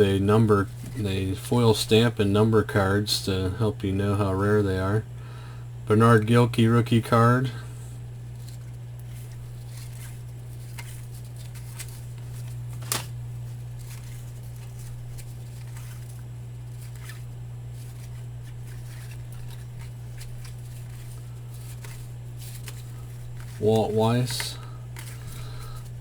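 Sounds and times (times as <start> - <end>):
cards rustling and flicking: 0.0 - 2.7, 8.2 - 26.0
steady low hum: 0.0 - 26.0.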